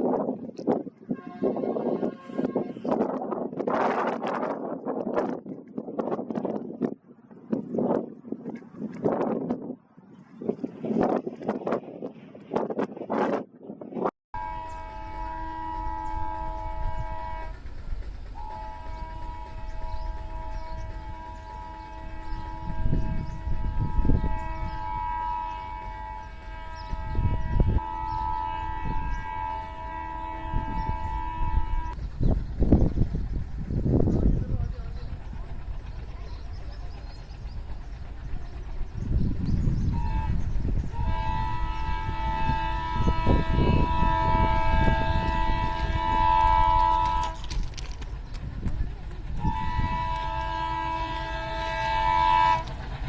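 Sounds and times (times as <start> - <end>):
train rumbling: 0.0 - 53.0
locomotive horn blast: 1.1 - 3.3, 14.3 - 32.0, 39.8 - 48.0, 49.3 - 53.0.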